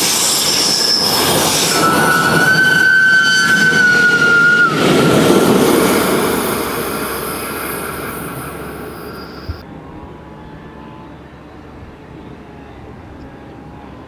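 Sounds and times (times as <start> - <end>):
locomotive rumble: 0.0 - 9.6
train wheel squeal: 0.0 - 9.6.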